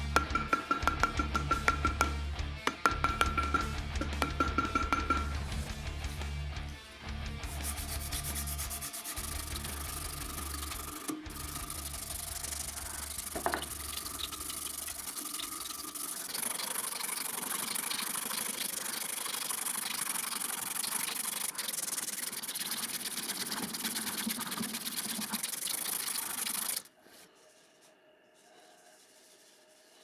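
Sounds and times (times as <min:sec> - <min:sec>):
abrasive sanding of steel blade: 0:07.4 - 0:13.6.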